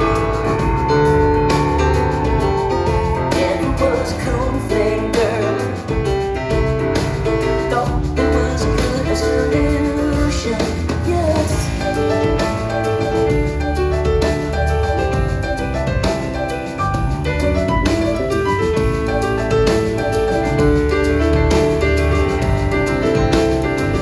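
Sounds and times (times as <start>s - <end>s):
backing band with bass: 0.0s - 24.0s
piano: 0.0s - 24.0s
woman singing: 3.1s - 5.8s, 7.7s - 11.8s.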